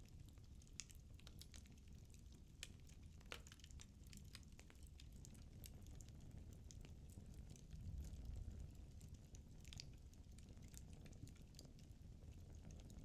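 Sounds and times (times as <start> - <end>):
low rumble of flames: 4.6 - 13.0.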